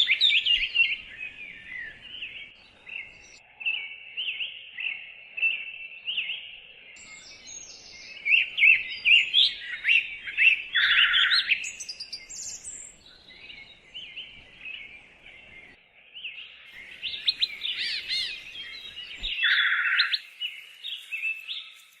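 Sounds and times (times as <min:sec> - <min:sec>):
birds chirping and singing: 0:00.0 - 0:22.0
harsh low bird calls: 0:07.0 - 0:15.8, 0:16.8 - 0:21.8.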